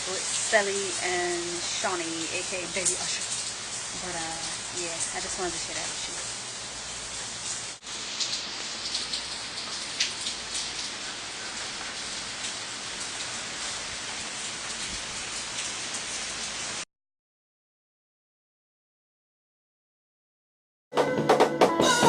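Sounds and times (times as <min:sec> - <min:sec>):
water dripping and splashing: 0:00.0 - 0:16.8.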